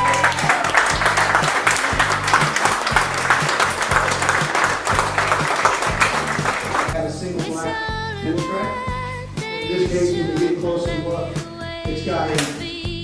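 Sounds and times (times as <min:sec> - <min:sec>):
crowd applauding: 0:00.0 - 0:07.0
music with repeating bass line: 0:00.0 - 0:13.0.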